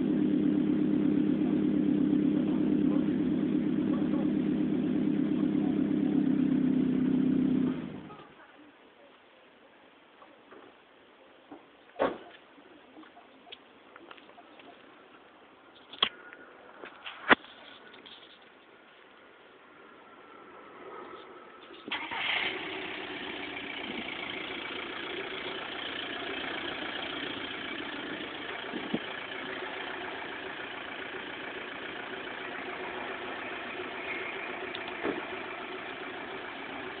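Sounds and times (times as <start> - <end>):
car engine starting and idling: 0.0 - 8.2, 21.8 - 37.0.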